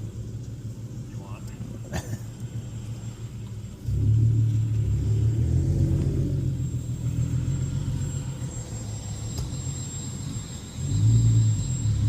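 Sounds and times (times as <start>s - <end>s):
car engine accelerating: 3.7s - 12.0s.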